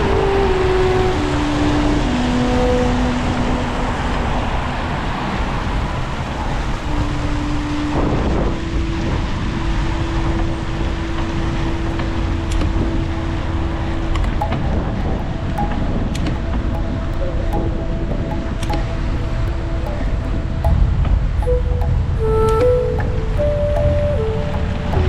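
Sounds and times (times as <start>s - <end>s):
traffic noise: 0.0s - 25.0s
wind rush on microphone: 0.0s - 25.0s
low vehicle hum: 11.6s - 25.0s.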